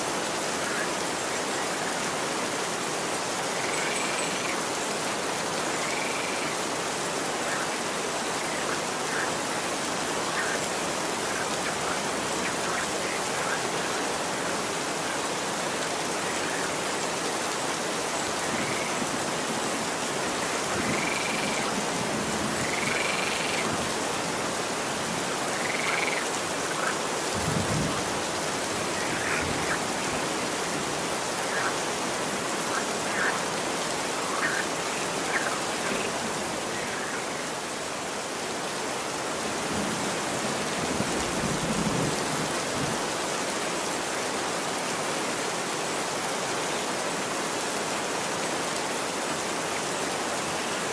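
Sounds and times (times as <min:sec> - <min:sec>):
rain falling on street: 0:00.0 - 0:50.9
frog-like croaks: 0:20.8 - 0:21.7, 0:22.6 - 0:23.7, 0:25.5 - 0:26.9, 0:32.7 - 0:33.4, 0:34.2 - 0:36.1.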